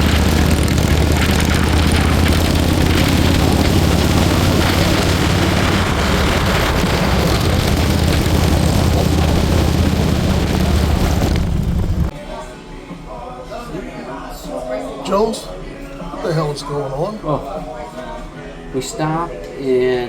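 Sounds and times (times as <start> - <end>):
motorcycle engine running: 0.0 - 12.1
wind rushing over microphone: 0.0 - 12.1.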